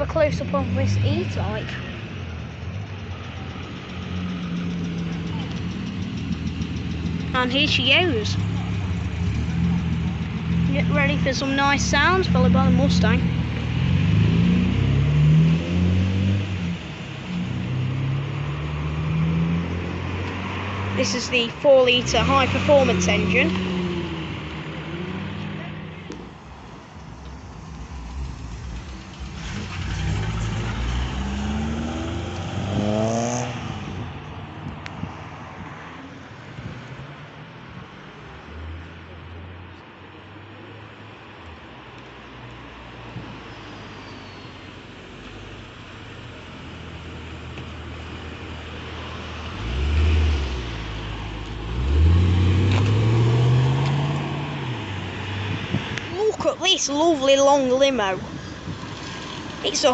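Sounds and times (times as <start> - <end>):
car engine revving: 3.3 - 26.3, 27.4 - 34.3, 46.6 - 56.1.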